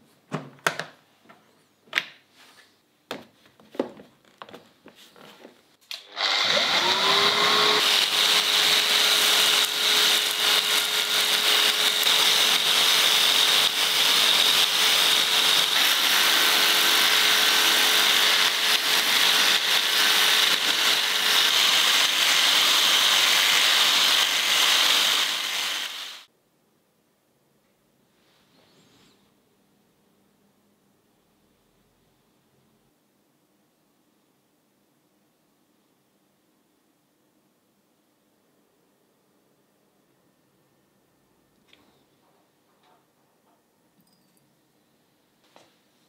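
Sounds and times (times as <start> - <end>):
electric motor grinding: 6.0 - 26.3.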